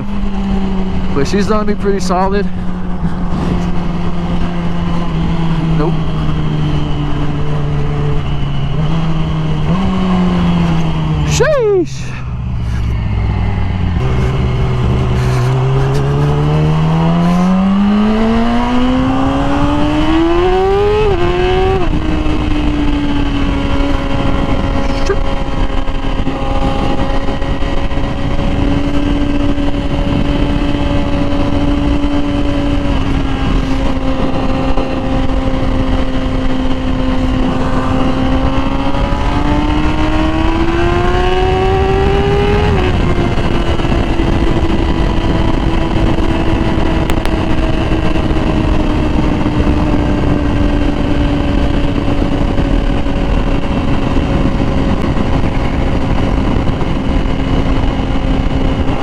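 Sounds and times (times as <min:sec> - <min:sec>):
sport bike engine revving: 0:00.0 - 0:59.0
wind rush: 0:00.0 - 0:59.0.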